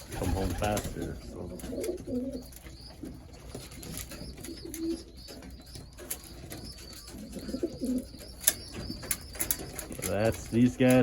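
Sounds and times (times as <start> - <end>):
pigeons cooing: 0.0 - 11.0
high wavering chirp: 2.1 - 10.8.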